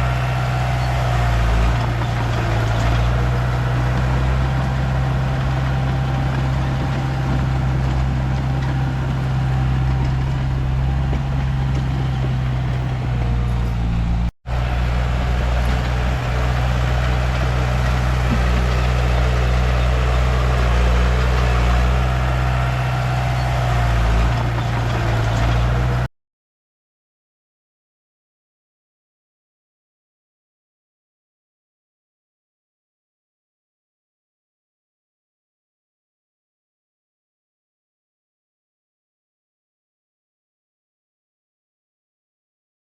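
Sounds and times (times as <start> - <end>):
bulldozer diesel engine running: 0.0 - 26.1.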